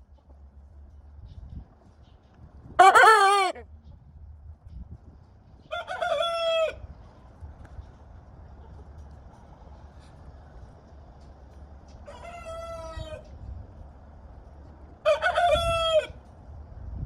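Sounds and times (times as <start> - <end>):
chickens calling: 2.8 - 3.6.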